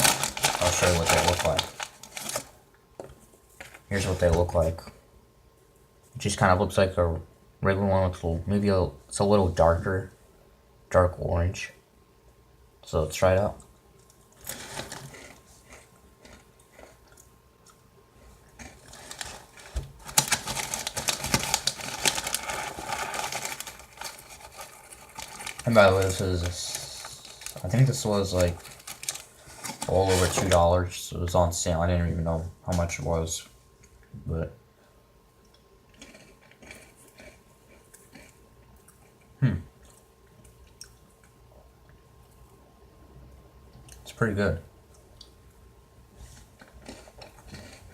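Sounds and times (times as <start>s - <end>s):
person chewing crunchy crackers: 14.0s - 30.5s, 35.4s - 41.4s, 46.3s - 47.9s.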